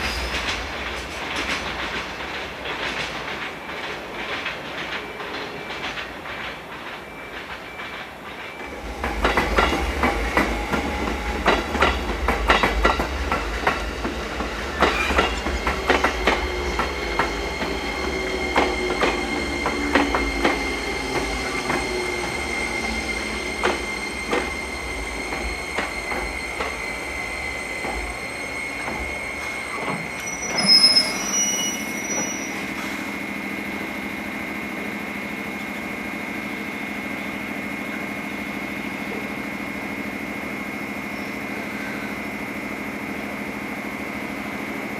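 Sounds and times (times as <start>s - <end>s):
train wheels clacking over rail joints: 0.0s - 26.9s
high wheel squeal: 13.8s - 33.1s.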